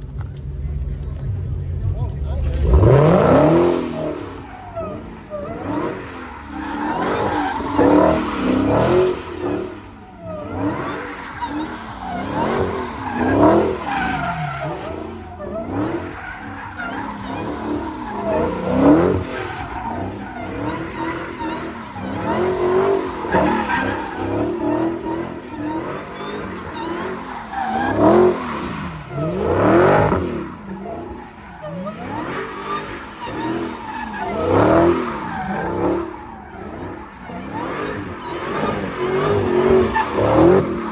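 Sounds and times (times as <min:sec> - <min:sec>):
vehicle engines revving: 0:00.0 - 0:40.9.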